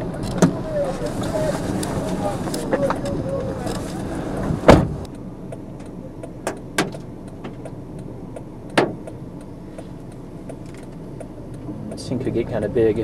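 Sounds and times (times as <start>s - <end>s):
wind buffeting microphone: 0.0s - 5.1s
faint regular ticking: 5.0s - 13.0s.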